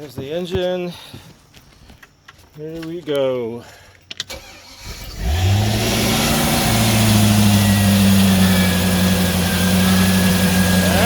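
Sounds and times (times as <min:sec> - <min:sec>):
boat engine starting and idling: 0:04.3 - 0:11.0.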